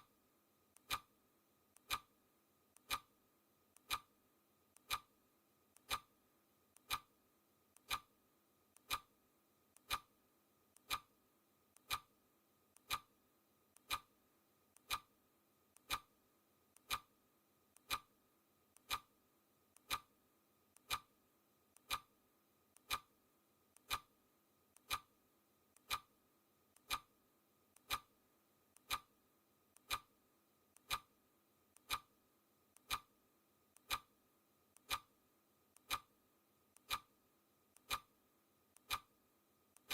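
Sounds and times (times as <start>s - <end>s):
clock ticking: 0.7s - 1.1s, 1.7s - 2.1s, 2.7s - 3.1s, 3.7s - 4.1s, 4.7s - 5.1s, 5.7s - 6.1s, 6.7s - 7.1s, 7.7s - 8.1s, 8.7s - 9.1s, 9.7s - 10.1s, 10.7s - 11.1s, 11.7s - 12.1s, 12.7s - 13.1s, 13.7s - 15.1s, 15.7s - 17.1s, 17.7s - 19.1s, 19.7s - 20.1s, 20.7s - 29.2s, 29.8s - 39.2s.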